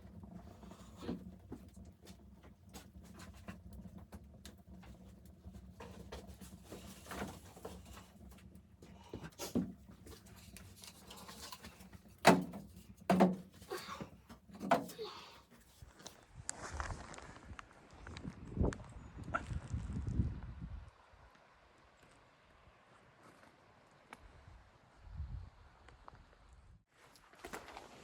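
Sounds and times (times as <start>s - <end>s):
knocks and thumps: 0.3s - 15.4s.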